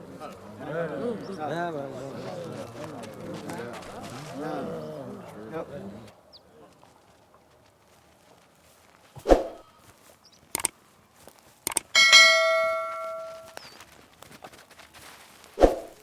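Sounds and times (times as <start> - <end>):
light clicks: 10.5 - 10.8, 11.6 - 11.9
bell ringing: 12.0 - 13.6.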